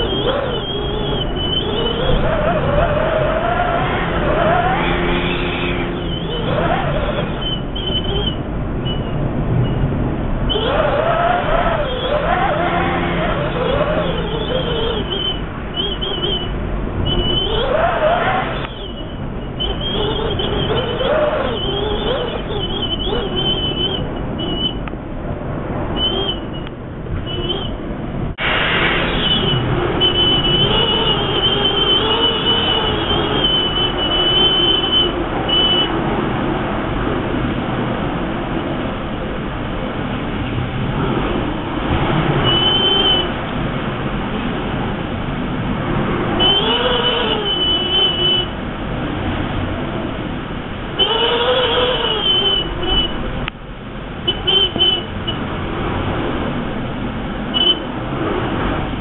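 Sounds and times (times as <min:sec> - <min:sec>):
whistling wind howl: 0:00.0 - 0:53.5
high wavering wind whistle: 0:10.5 - 0:24.8.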